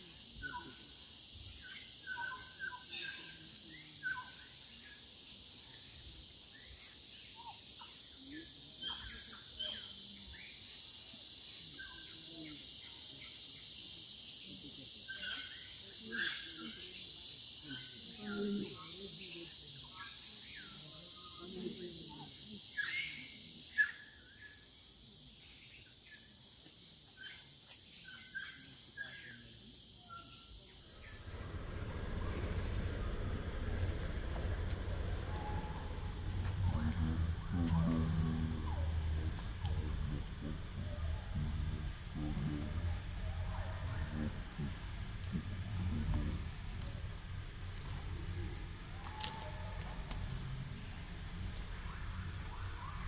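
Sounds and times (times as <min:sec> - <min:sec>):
high insect-like hiss: 0:00.0 - 0:53.0
birds whistled chirps: 0:01.5 - 0:04.9, 0:22.2 - 0:24.6.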